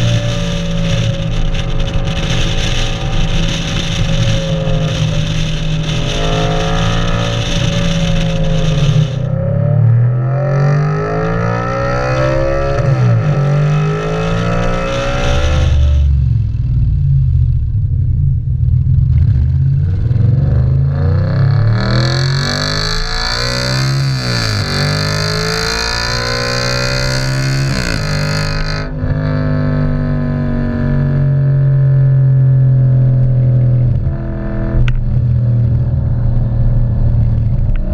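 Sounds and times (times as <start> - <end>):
car engine revving: 0.0 - 17.7, 18.8 - 29.7.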